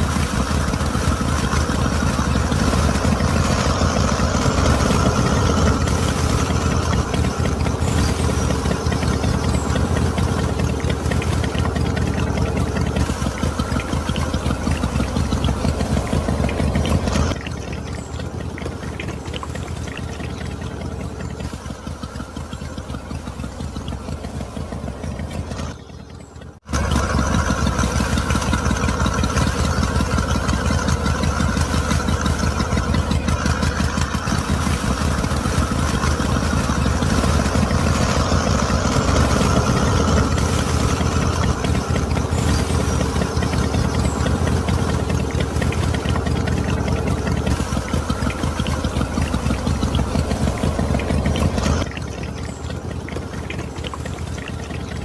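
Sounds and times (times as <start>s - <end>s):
small motor chattering: 0.0s - 55.0s.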